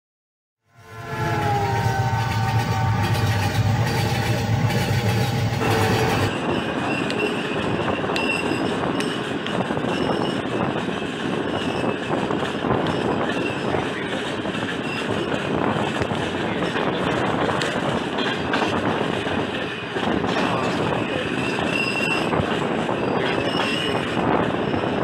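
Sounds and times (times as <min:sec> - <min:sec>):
passenger train running: 0:00.7 - 0:25.0
steady tonal sound: 0:00.8 - 0:08.5
high wheel squeals: 0:00.8 - 0:09.2, 0:09.8 - 0:10.7, 0:21.0 - 0:25.0.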